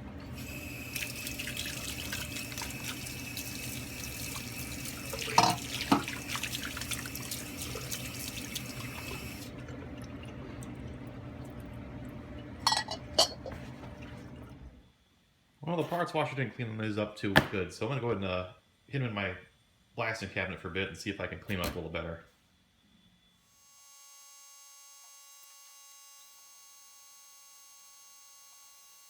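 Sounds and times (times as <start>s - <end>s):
pump humming: 0.0s - 14.9s
solvent splashing over metal: 0.3s - 10.7s.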